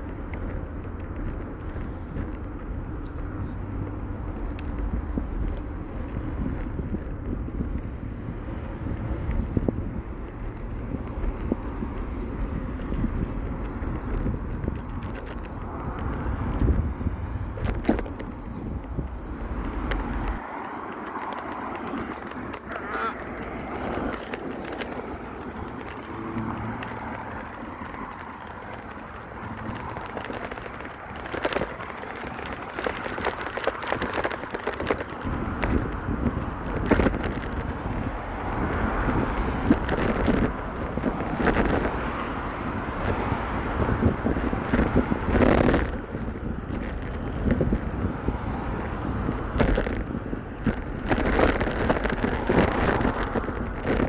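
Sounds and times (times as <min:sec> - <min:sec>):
passing road traffic: 0:00.0 - 0:54.0
wind rumbling on microphone: 0:00.0 - 0:54.0.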